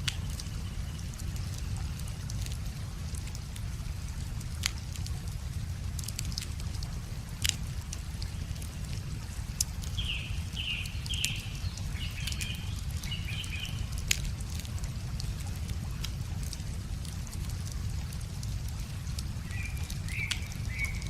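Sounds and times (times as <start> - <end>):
wood fire crackling and popping: 0.0 - 21.0
bird chirping: 9.9 - 13.8, 19.5 - 21.0.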